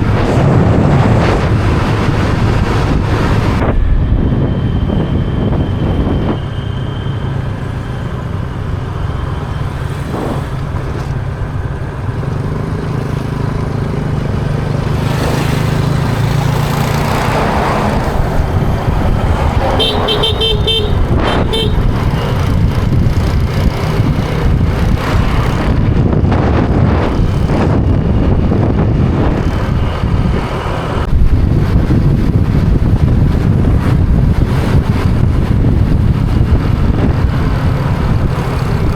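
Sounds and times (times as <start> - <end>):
wind buffeting microphone: 0.0 - 38.9
motorbike engine running: 7.9 - 38.9
horn beeping: 19.5 - 22.4.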